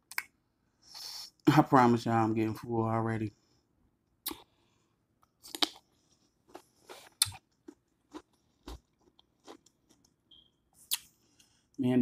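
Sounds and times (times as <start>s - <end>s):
chewing and lip-smacking: 5.2s - 10.2s.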